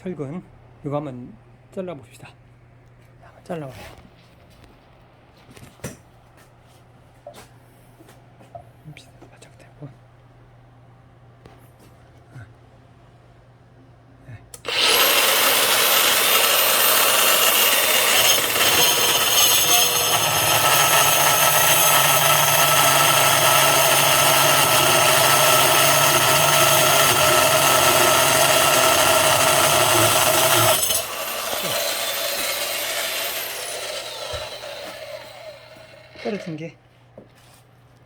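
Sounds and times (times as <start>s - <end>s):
motor winding down whine: 14.6s - 36.4s
rebar cutter grinding steel: 14.6s - 36.6s.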